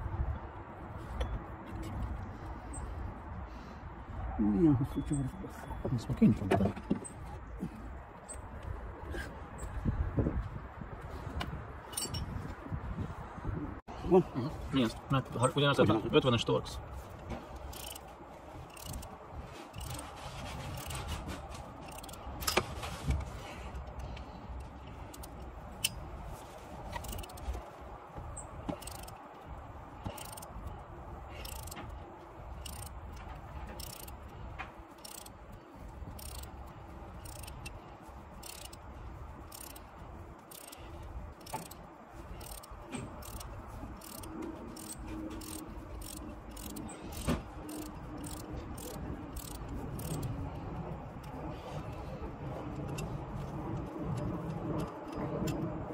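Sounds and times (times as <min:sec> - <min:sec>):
metallic clicks of hand tools: 0:11.9 - 0:12.3, 0:17.6 - 0:18.1, 0:18.7 - 0:19.1, 0:21.8 - 0:22.7, 0:23.8 - 0:26.0, 0:26.9 - 0:27.6, 0:28.7 - 0:29.2, 0:30.1 - 0:30.7, 0:31.4 - 0:32.0, 0:32.6 - 0:34.3, 0:35.0 - 0:35.4, 0:36.1 - 0:36.6, 0:37.2 - 0:37.8, 0:38.4 - 0:38.8, 0:39.5 - 0:39.8, 0:40.5 - 0:40.8, 0:41.4 - 0:50.4.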